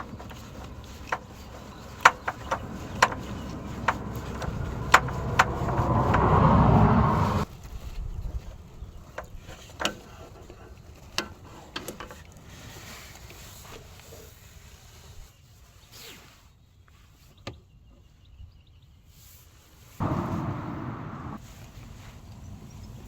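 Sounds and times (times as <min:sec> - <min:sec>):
sharp knocks and clicks: 0:00.0 - 0:06.6.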